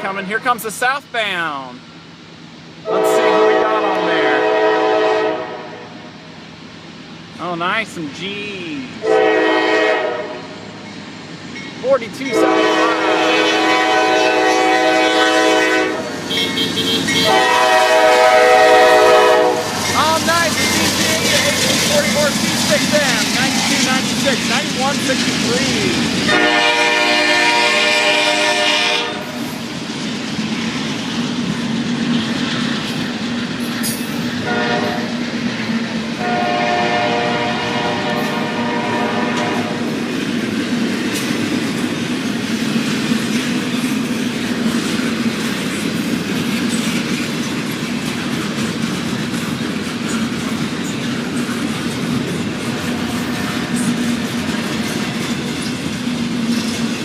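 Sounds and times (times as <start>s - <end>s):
train rumble and wheel clatter: 0.0s - 57.0s
locomotive air horn blasts: 2.9s - 6.0s, 9.0s - 10.6s, 12.3s - 19.8s, 26.3s - 29.4s, 34.4s - 35.2s, 36.2s - 39.9s.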